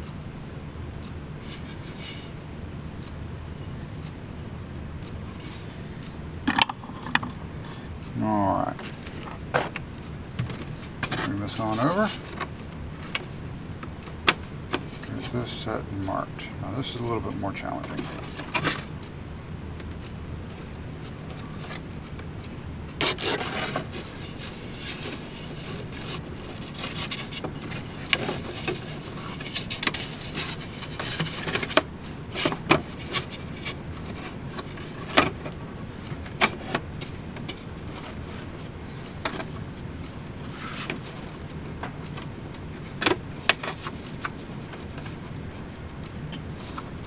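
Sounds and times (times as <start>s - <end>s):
steady low hum: 0.0s - 47.0s
scrape on wicker: 1.4s - 2.4s, 23.0s - 31.7s
wicker rubbing and rustling: 10.7s - 12.4s.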